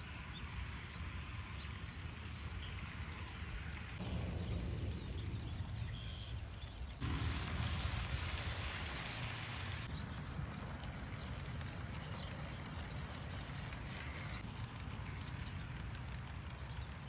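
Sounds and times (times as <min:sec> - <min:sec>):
model train rumbling: 0:00.0 - 0:06.2, 0:07.0 - 0:17.0
wheels clicking on rails: 0:00.0 - 0:17.0
bird chirping: 0:00.2 - 0:14.4
hiss: 0:07.0 - 0:09.9.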